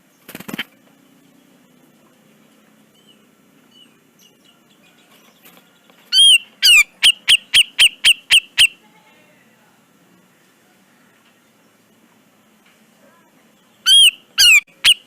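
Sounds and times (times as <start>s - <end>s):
bird calling sharp notes: 6.1s - 8.8s, 13.8s - 15.0s.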